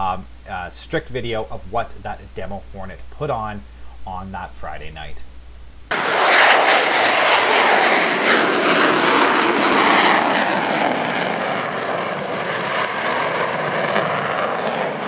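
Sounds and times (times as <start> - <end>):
fighter jet engines roaring: 5.9 - 15.0.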